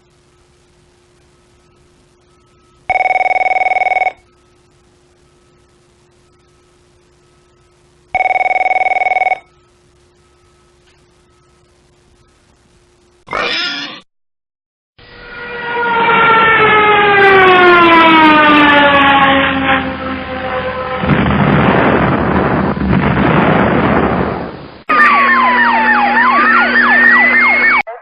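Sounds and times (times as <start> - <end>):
long falling whistle: 15.0 - 20.9, 24.9 - 27.8
siren-like sweeping tone: 15.0 - 21.2, 24.9 - 28.0
loud rushing noise: 19.2 - 25.4.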